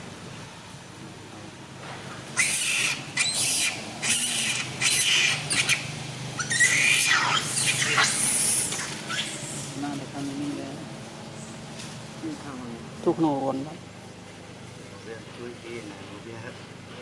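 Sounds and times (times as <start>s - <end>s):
monkey screeching: 2.3s - 9.8s.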